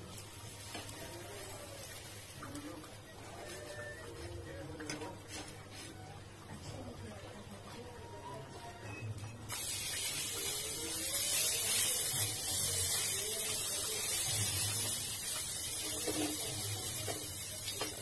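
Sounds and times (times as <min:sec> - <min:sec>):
food sizzling in a pan: 0:00.0 - 0:04.2, 0:09.5 - 0:18.0.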